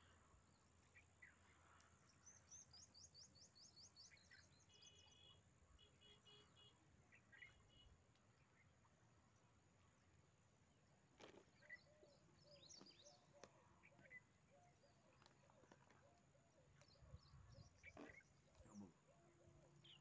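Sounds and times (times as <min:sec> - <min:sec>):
small birds chirping: 0:00.0 - 0:10.1, 0:11.2 - 0:20.0
low bird call: 0:11.2 - 0:20.0.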